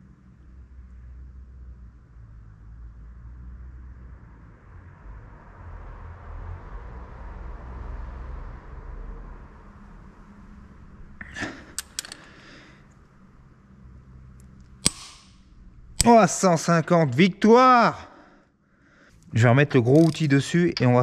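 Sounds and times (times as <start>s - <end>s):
torque wrench straining: 11.2s - 12.4s, 19.9s - 20.3s
metallic clinks of tool on metal: 11.8s - 12.3s, 19.9s - 20.9s.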